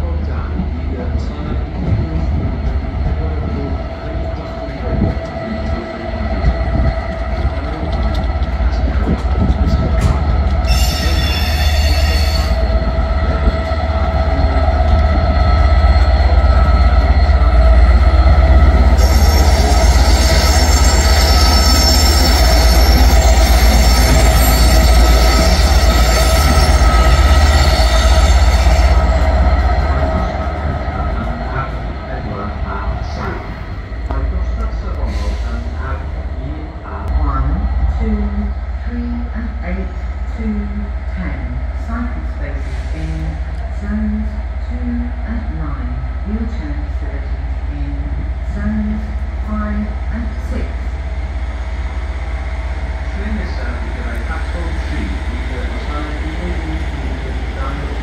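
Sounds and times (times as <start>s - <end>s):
diesel locomotive rumble: 0.0s - 58.0s
high-pitched wheel squeal: 10.6s - 12.7s, 19.0s - 29.0s.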